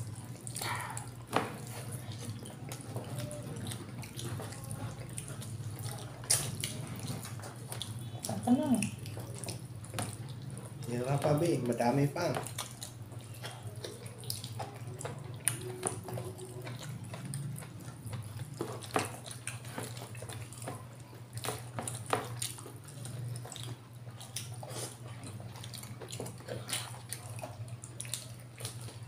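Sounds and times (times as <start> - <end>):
wet chewing and lip-smacking: 0.0 - 29.0.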